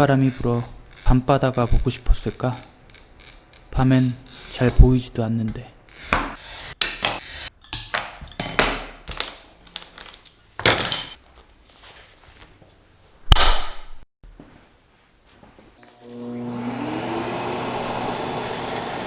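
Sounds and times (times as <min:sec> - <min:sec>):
glass cutter scraping: 0:00.0 - 0:04.8, 0:05.9 - 0:08.7, 0:17.8 - 0:19.0
glass pieces clinking: 0:07.1 - 0:11.2.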